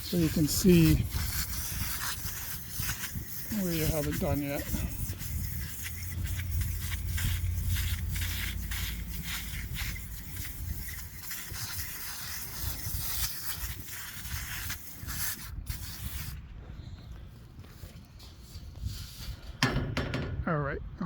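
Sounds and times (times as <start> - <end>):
aerosol can spraying: 0.0 - 16.4.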